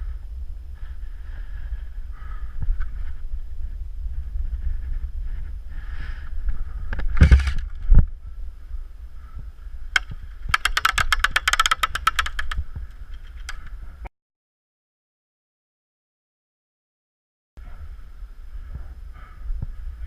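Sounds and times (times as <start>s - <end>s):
wind on microphone: 0.0s - 14.1s, 17.6s - 20.0s
airsoft gun firing: 7.2s - 7.6s, 10.0s - 12.6s.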